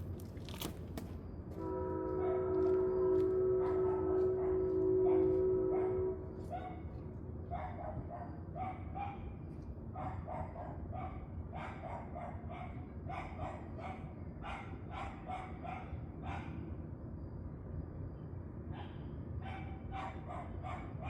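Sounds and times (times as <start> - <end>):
dog barking: 3.6 - 6.8, 7.5 - 9.3, 9.9 - 16.6, 18.7 - 21.0.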